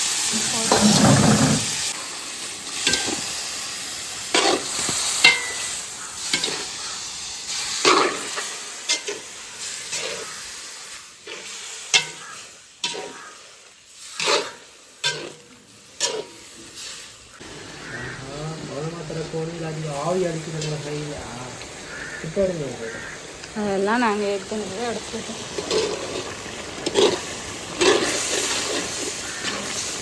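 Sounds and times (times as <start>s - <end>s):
meat sizzling in hot oil: 0.0s - 30.0s
spoon scraping and knocking pot: 0.7s - 1.8s.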